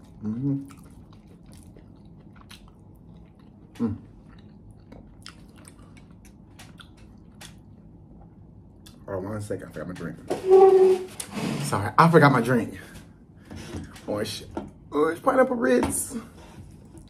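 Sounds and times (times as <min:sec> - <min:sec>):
person chewing: 0:00.0 - 0:09.0.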